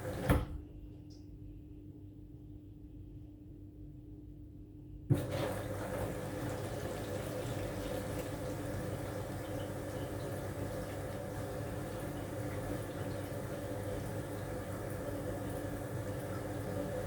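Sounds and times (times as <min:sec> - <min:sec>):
water running into drum: 0:00.0 - 0:00.6, 0:05.1 - 0:17.0
washing machine loud knock: 0:00.0 - 0:00.7, 0:05.1 - 0:06.9.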